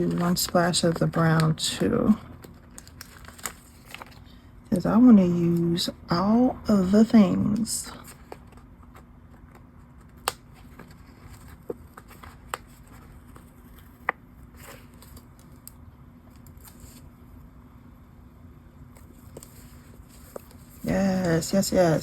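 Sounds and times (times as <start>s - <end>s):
paper handling: 0.0s - 4.4s, 7.6s - 17.1s, 19.0s - 22.0s
faint steady hum: 0.0s - 22.0s.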